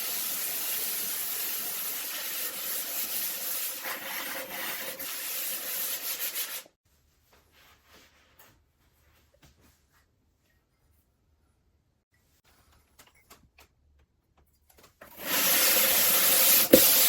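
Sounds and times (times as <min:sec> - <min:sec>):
pot grinding on diamond disc: 0:15.1 - 0:17.0.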